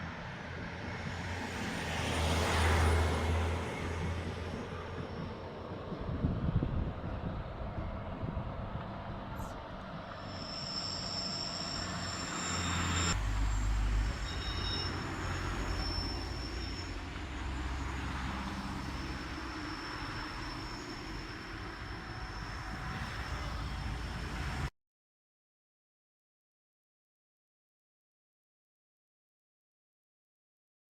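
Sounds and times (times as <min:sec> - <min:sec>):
train rumbling: 0:00.0 - 0:24.7
wheel squeal: 0:09.4 - 0:24.7.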